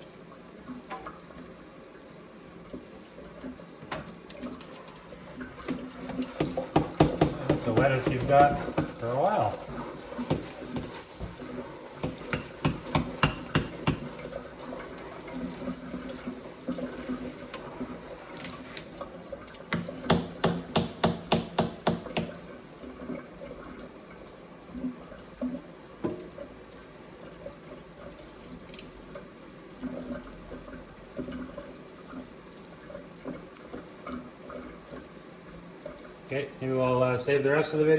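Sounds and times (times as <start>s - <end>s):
water running from a tap: 0.0s - 37.9s
quick sharp knocks or splashes: 12.0s - 14.1s.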